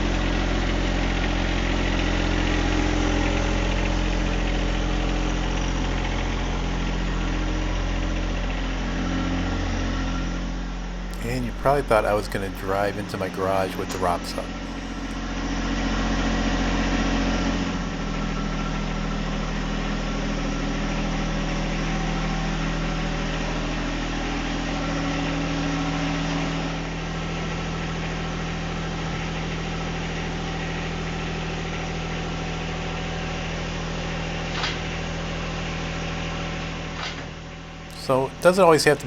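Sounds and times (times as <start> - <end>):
tractor diesel engine running: 0.0 - 15.4.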